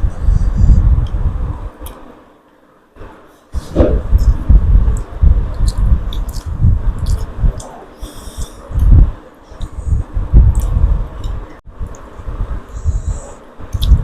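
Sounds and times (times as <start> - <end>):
low thumps: 3.6 - 4.8.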